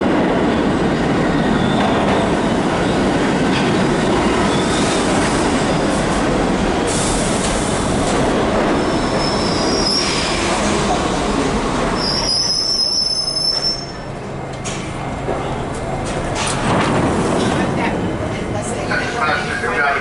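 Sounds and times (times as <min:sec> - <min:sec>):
subway train rumbling on track: 0:00.0 - 0:20.0
high-pitched wheel squeals: 0:12.0 - 0:14.1.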